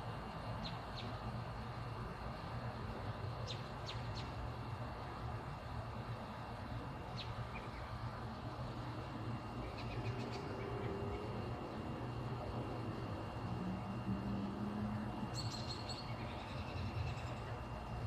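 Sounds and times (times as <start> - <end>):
steady low hum: 0.0 - 18.0
birds chirping: 15.1 - 17.8.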